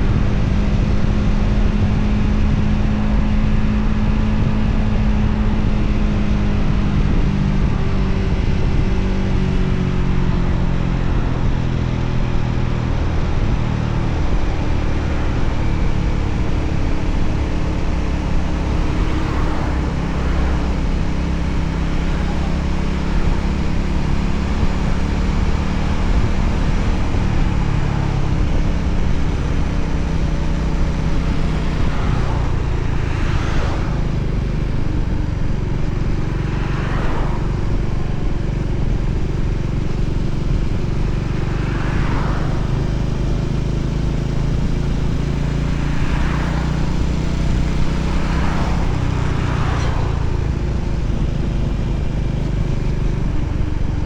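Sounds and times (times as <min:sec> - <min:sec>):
motorcycle engine running: 0:00.0 - 0:54.0
wind noise: 0:00.0 - 0:54.0
vehicles swishing past: 0:12.4 - 0:54.0.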